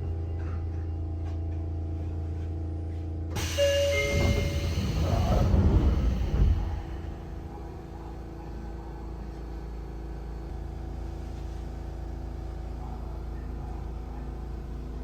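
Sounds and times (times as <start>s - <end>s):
train doors rumbling and knocking: 3.4s - 9.7s
train equipment humming: 3.4s - 10.5s.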